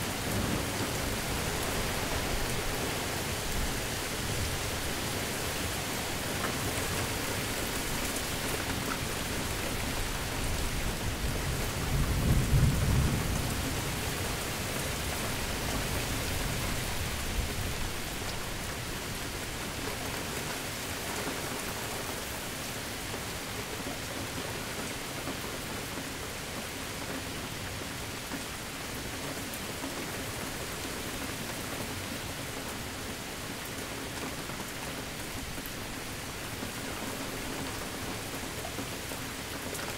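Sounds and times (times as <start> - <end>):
heavy rain falling: 0.0 - 39.9
low roll of thunder: 11.3 - 14.4.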